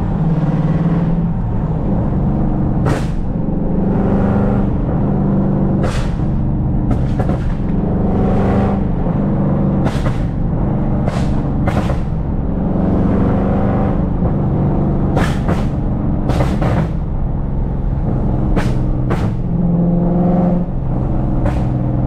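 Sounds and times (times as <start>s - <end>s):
car exhaust revving: 0.0s - 22.0s
sharp exhaust pops: 2.8s - 3.4s, 5.7s - 7.8s, 9.8s - 12.3s, 15.1s - 17.1s, 18.4s - 19.5s, 21.3s - 21.8s.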